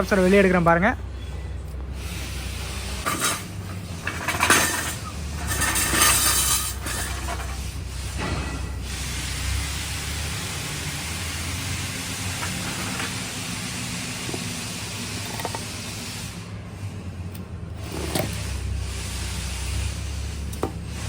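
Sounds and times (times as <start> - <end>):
scrape: 2.0 - 9.4, 17.8 - 21.0.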